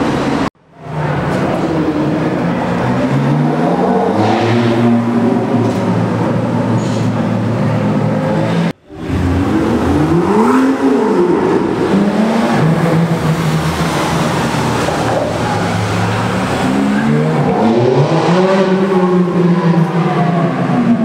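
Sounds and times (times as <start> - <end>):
sports car engines revving: 0.0 - 21.0.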